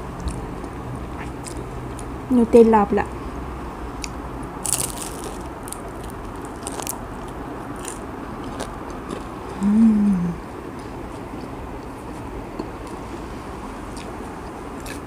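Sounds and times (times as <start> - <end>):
crunchy bite and chewing: 4.0 - 9.6, 14.8 - 15.0
closed-mouth hum: 5.4 - 15.0.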